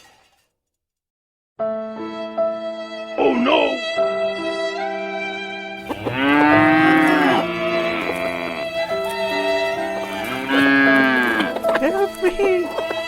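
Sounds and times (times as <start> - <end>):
background music: 1.6 - 13.0
cow mooing: 5.8 - 12.4.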